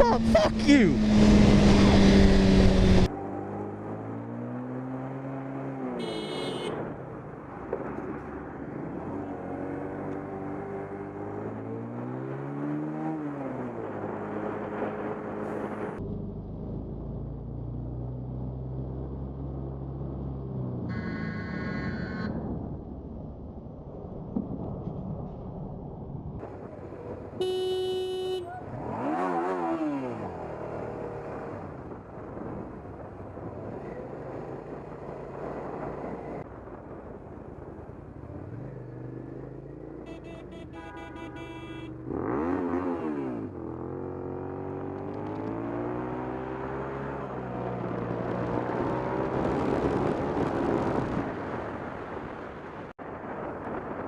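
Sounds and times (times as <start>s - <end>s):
motorcycle engine accelerating: 0.0s - 5.8s, 41.8s - 51.4s
wind and road noise: 0.0s - 54.0s
vehicle horn: 6.0s - 6.8s, 27.4s - 28.6s, 40.0s - 42.1s.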